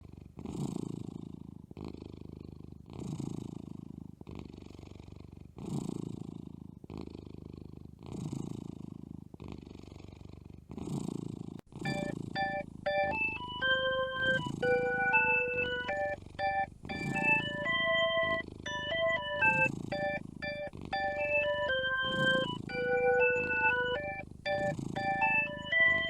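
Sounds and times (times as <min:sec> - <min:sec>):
kitten purring: 0:00.0 - 0:26.0
electronic music notes: 0:11.8 - 0:26.0.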